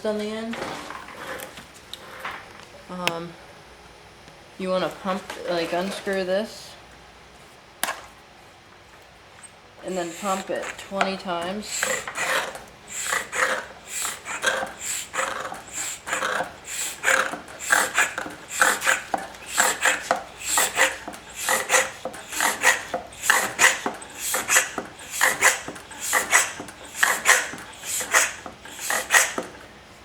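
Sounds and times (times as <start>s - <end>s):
hand pump rasping strokes: 9.8s - 30.0s.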